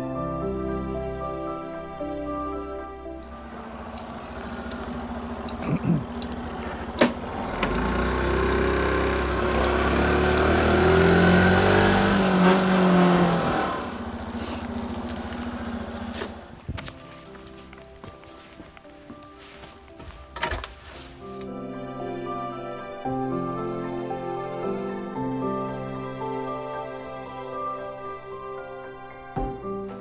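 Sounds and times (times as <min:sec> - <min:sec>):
light regular ticks: 0:03.2 - 0:16.4
motorcycle engine running: 0:03.2 - 0:17.6.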